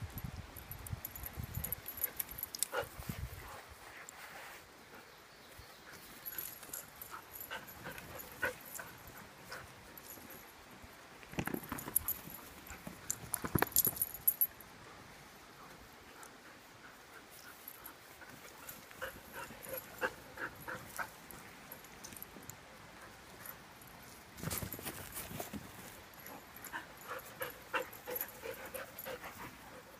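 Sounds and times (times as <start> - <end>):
puppies scuffling: 23.4 - 29.9.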